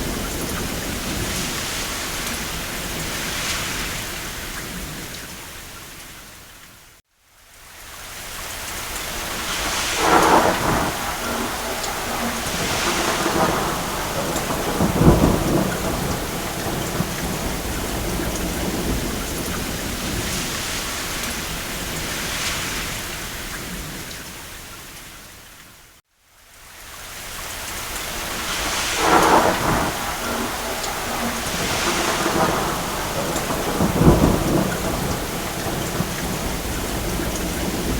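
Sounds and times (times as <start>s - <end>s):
rain on a roof: 0.0s - 37.9s
distant thunder: 9.3s - 22.5s, 28.2s - 37.9s.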